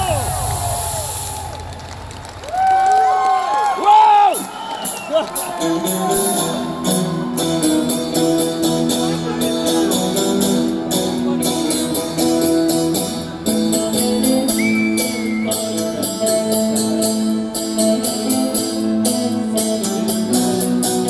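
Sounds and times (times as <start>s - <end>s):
rock band playing: 4.4s - 21.0s
high whistle-like tone: 14.6s - 15.6s.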